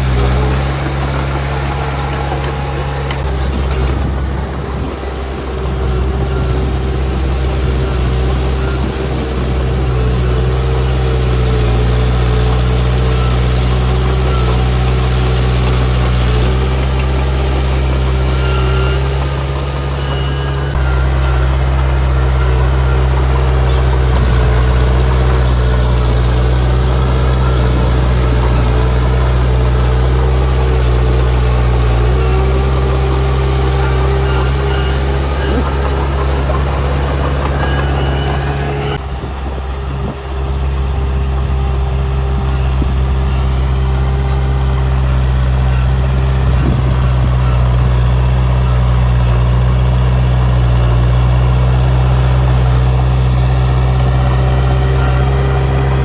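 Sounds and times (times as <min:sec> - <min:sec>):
heavy diesel engine humming: 0:00.0 - 0:56.0.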